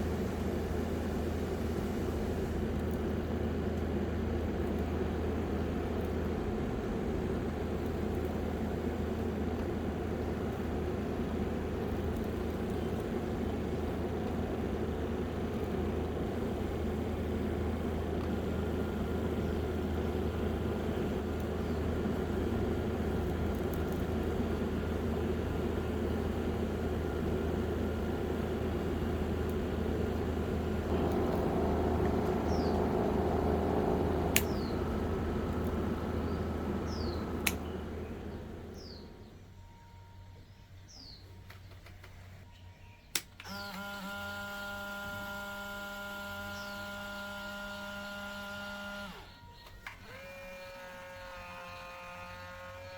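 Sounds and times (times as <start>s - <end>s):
electric fan motors whirring: 0.0s - 52.9s
sharp clicks: 35.6s - 38.0s.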